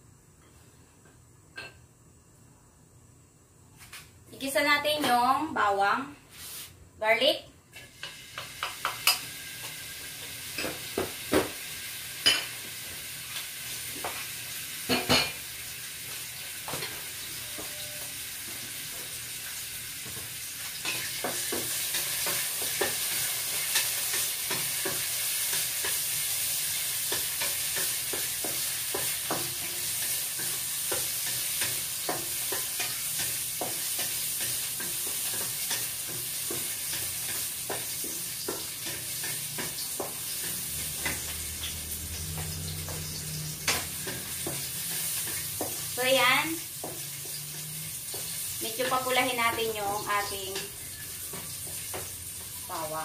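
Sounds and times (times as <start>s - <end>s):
wooden spatula scraping a pan: 6.3s - 6.8s
garlic sizzling in hot oil: 7.7s - 53.0s.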